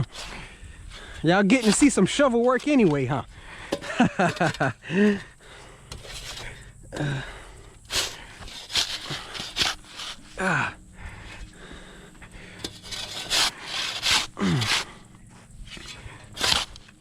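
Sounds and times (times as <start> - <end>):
man breathing hard: 0.0 - 1.3, 3.3 - 3.9, 4.8 - 16.4
shovel digging into dirt: 0.0 - 3.0, 3.7 - 5.2, 5.9 - 7.2, 7.8 - 10.3, 12.6 - 15.0, 15.7 - 17.0
man grunting: 10.4 - 10.8, 14.4 - 14.9.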